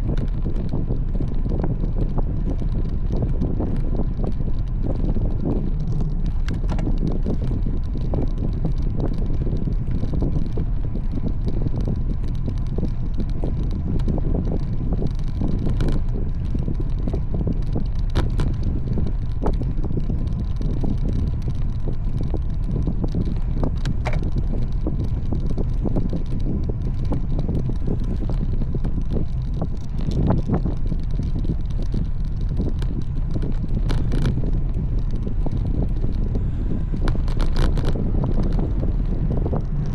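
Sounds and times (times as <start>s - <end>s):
wind buffeting microphone: 0.0s - 39.9s
light clicks and knocks: 21.7s - 34.4s.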